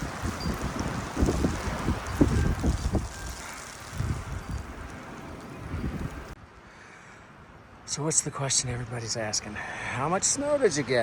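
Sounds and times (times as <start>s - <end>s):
wind buffeting microphone: 0.0s - 6.4s
hiss of blowing wind: 0.0s - 11.0s.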